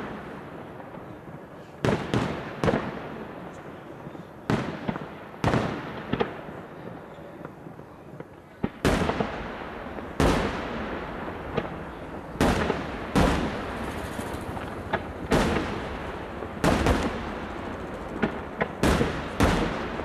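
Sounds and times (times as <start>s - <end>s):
lighter firework cracks: 0.0s - 20.0s
firework shells bursting: 8.8s - 20.0s.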